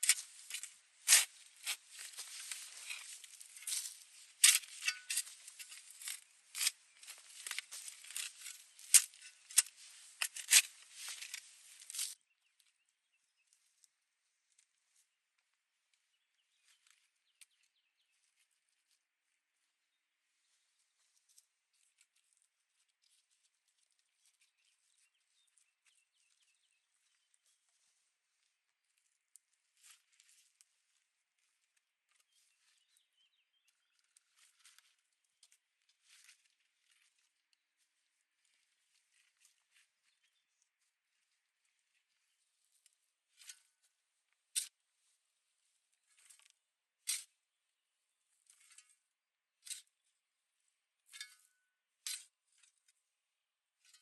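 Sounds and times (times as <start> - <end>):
small rustles: 0.0 - 12.8, 33.7 - 47.4.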